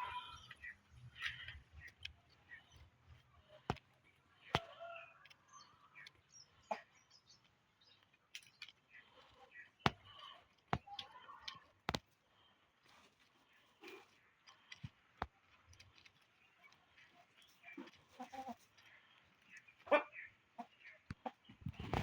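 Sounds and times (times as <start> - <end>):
chickens clucking and chirping: 0.0 - 7.5, 16.5 - 22.0
beaks pecking: 0.3 - 22.0.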